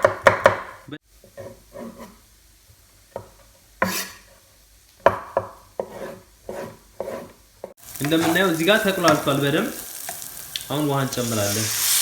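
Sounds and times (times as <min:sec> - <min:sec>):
knife chopping on cutting board: 0:00.0 - 0:00.8, 0:05.0 - 0:08.4.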